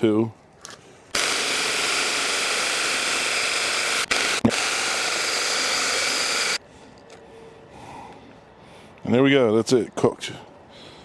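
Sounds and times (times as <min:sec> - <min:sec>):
mini chainsaw cutting wood: 0:01.1 - 0:06.6.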